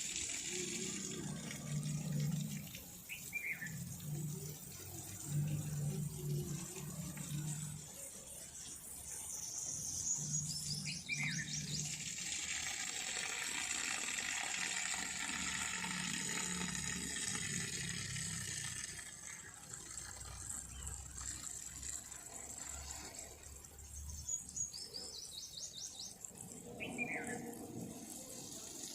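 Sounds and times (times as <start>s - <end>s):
running water: 0.0s - 28.9s
bird high chirps: 26.8s - 27.5s.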